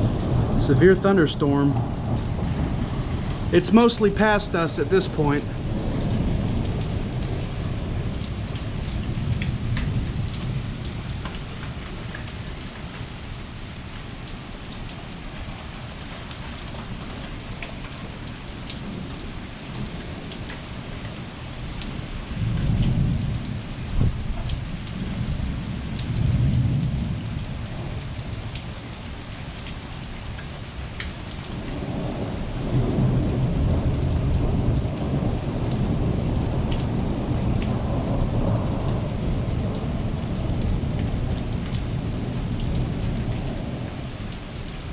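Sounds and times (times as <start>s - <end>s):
thunder rumbling: 0.0s - 13.2s, 18.0s - 28.3s, 31.5s - 44.9s
heavy rain falling: 0.0s - 44.9s
raindrops ticking: 0.0s - 44.9s.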